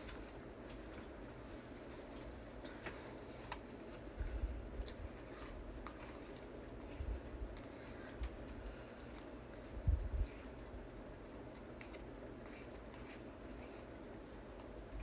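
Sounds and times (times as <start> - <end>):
low room hum: 0.0 - 15.0
person chewing food: 4.6 - 15.0.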